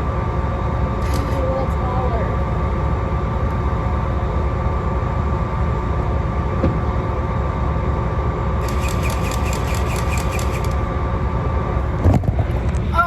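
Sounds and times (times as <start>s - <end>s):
rapid sharp clicks: 8.6s - 10.8s.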